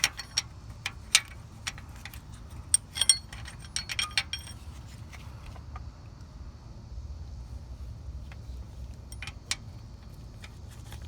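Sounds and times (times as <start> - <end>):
wrench clicking on a bolt: 0.0 - 4.6.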